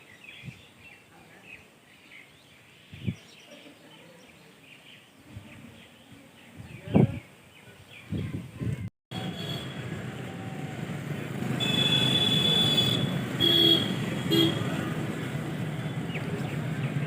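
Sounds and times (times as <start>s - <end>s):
vehicle horns honking: 9.1s - 10.7s, 11.3s - 15.0s
road traffic noise: 9.1s - 17.0s.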